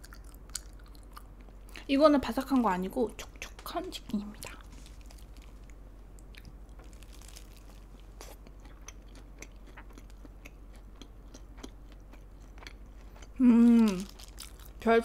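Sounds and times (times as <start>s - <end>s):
wet chewing mouth sounds: 8.2s - 14.8s
short vocal sound: 13.4s - 14.1s.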